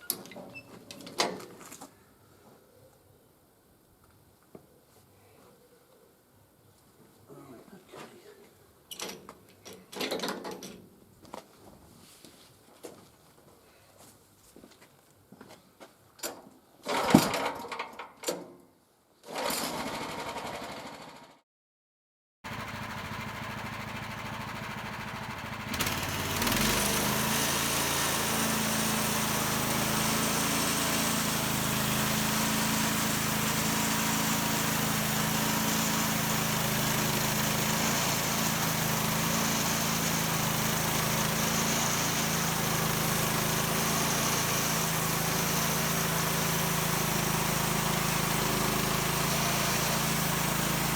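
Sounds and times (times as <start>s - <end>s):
sawmill engine running: 22.5s - 50.9s.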